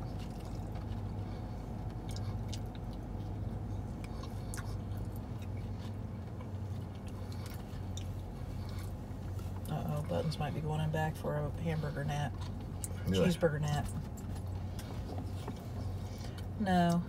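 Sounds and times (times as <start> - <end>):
chewing: 0.0 - 10.3, 11.8 - 17.0
steady low hum: 0.0 - 17.0.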